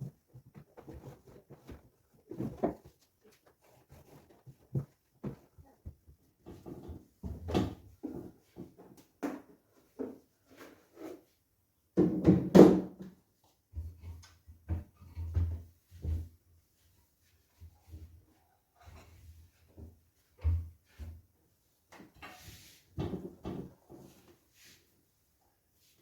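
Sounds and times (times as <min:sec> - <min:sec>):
household items knocking and clattering: 0:00.0 - 0:10.2, 0:12.0 - 0:13.1.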